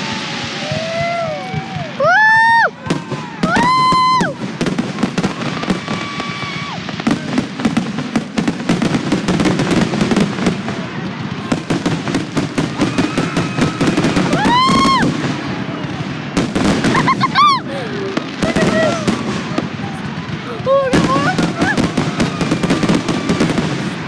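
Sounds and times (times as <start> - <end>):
fireworks crackling and popping: 0.0 - 24.0
whistling firework shot: 12.7 - 15.8, 20.9 - 24.0.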